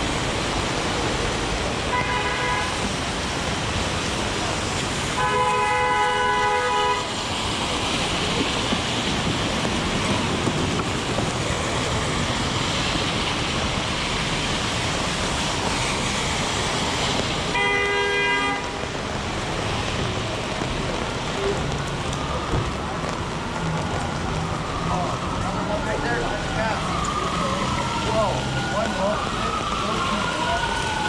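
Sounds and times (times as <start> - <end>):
heavy rain: 0.0 - 31.0
vehicle horn: 1.9 - 2.8, 5.2 - 7.1, 17.5 - 18.8.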